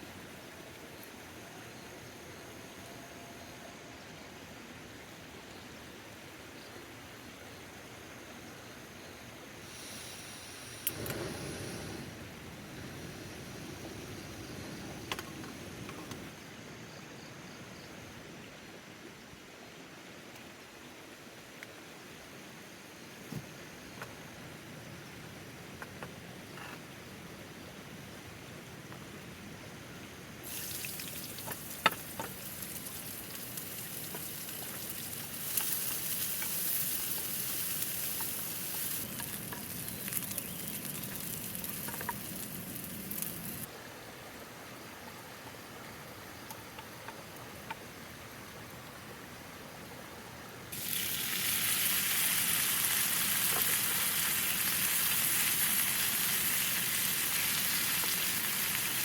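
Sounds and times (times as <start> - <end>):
food sizzling in a pan: 30.4 - 43.7, 50.7 - 59.0.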